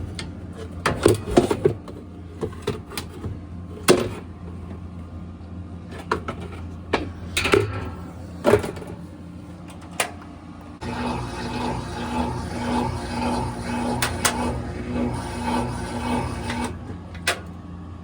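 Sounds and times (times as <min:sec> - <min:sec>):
steady low hum: 0:00.0 - 0:18.0
whooshing with pulsing hum: 0:06.6 - 0:17.3.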